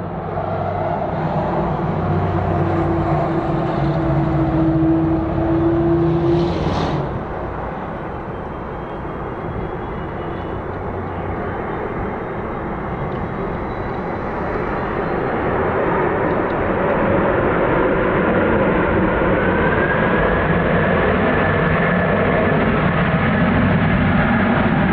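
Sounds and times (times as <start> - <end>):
steady humming tone: 0.0 - 19.6
jet engines roaring: 0.0 - 24.9.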